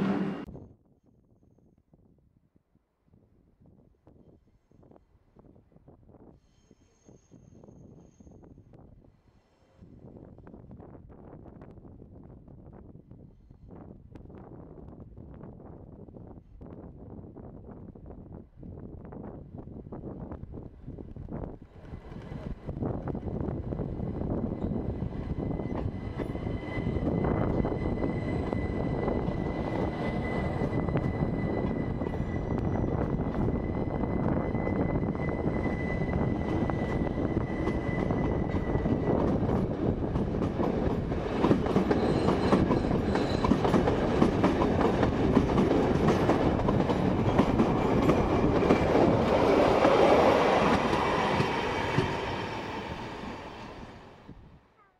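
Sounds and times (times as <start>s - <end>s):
train wheels clattering on rails: 34.2s - 52.4s.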